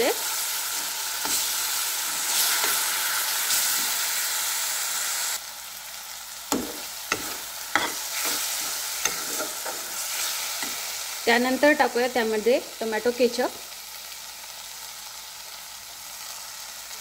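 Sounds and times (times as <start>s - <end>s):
food sizzling in hot oil: 0.0s - 17.0s
spoon scraping a pan: 0.3s - 4.0s, 6.5s - 11.0s.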